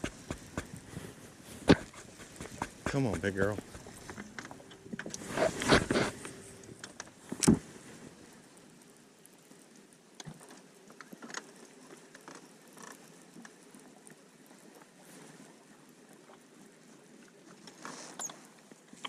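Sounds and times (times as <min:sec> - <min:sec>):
faint scattered clicks: 0:01.7 - 0:07.6.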